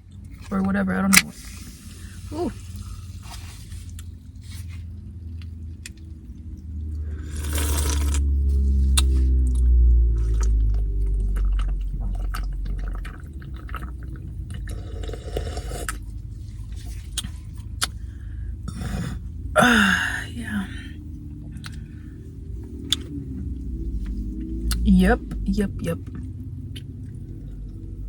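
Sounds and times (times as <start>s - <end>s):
liquid sloshing: 1.4s - 18.2s.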